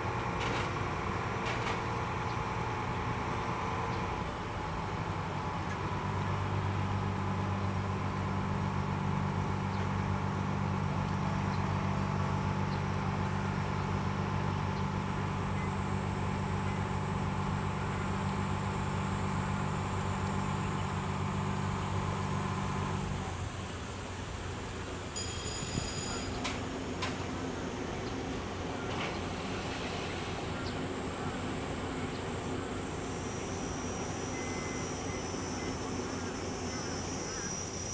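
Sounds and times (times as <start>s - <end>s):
diesel engine humming: 0.0s - 37.9s
faint high whine: 24.5s - 37.9s.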